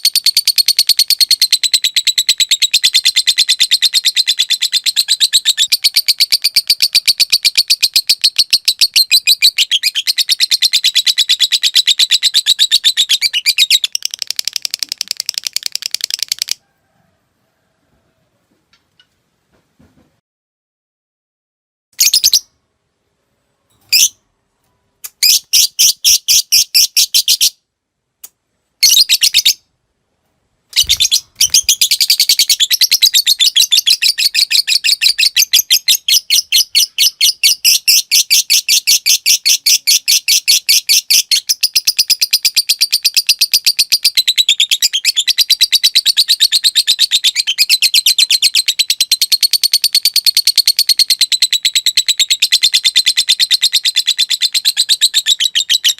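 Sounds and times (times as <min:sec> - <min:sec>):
lovebird chattering: 0:30.7 - 0:55.9.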